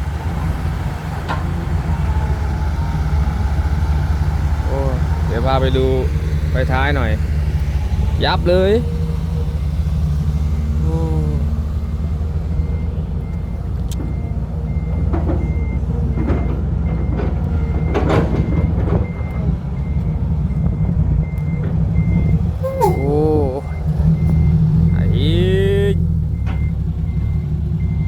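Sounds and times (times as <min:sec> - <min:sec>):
truck engine rumble: 0:00.0 - 0:28.0
truck reversing alarm beeping: 0:00.0 - 0:28.0.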